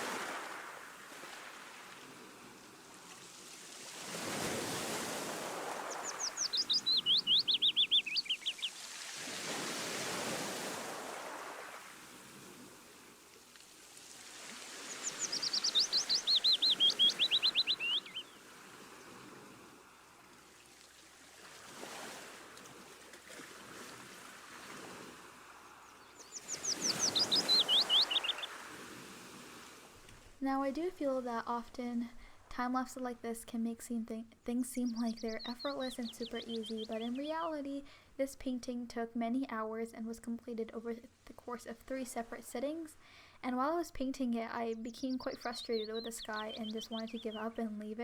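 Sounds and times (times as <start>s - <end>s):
sea waves washing: 0.0s - 30.4s
songbird trilling: 5.8s - 8.9s, 14.8s - 18.4s, 25.9s - 28.6s, 34.8s - 37.4s, 44.8s - 47.6s.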